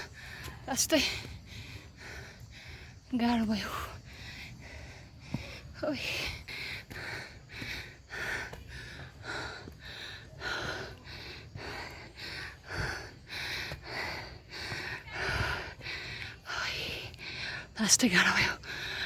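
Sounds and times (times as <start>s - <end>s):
person panting: 0.0s - 17.8s, 18.6s - 19.0s.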